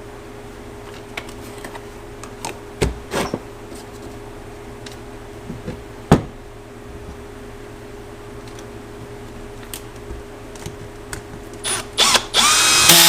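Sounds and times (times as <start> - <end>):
steady background hum: 0.0 - 13.0
knock on workbench: 5.5 - 6.4.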